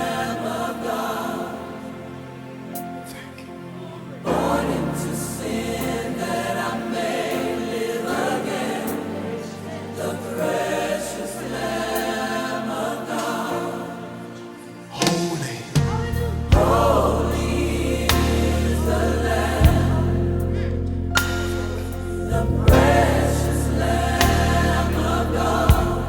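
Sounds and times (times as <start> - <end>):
choir singing gospel music: 0.0 - 26.0
bass line: 15.8 - 26.0.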